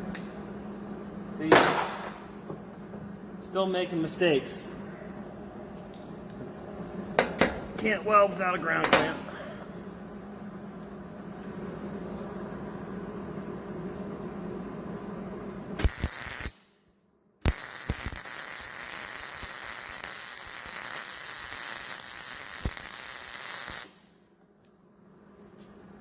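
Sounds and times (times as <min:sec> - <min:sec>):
welding arc hissing and crackling: 0:15.8 - 0:16.8, 0:17.4 - 0:24.1.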